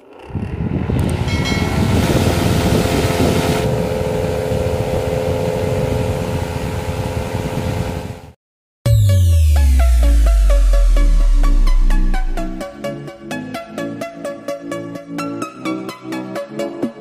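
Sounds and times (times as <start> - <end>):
electric fan motor rattling hum: 0.0 - 8.4.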